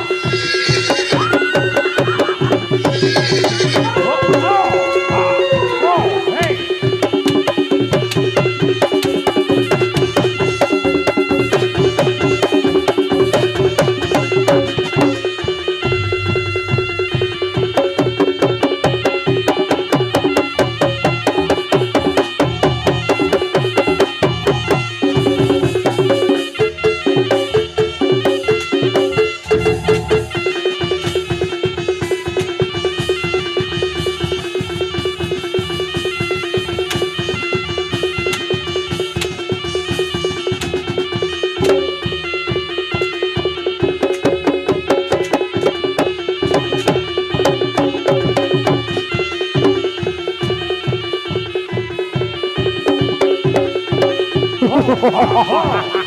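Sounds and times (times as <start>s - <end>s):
drums and percussion beat: 0.0s - 56.0s
melodic lines: 15.8s - 17.7s
held drone: 15.8s - 17.8s, 29.4s - 30.6s.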